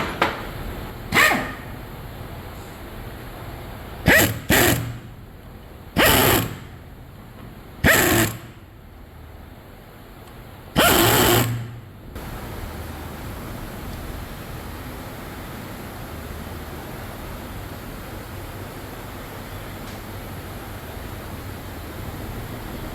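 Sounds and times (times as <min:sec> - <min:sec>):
steady workshop hum: 0:00.0 - 0:22.9
pneumatic power tool bursts: 0:01.1 - 0:01.8, 0:04.0 - 0:05.2, 0:06.0 - 0:06.9, 0:07.8 - 0:08.7, 0:10.8 - 0:11.9.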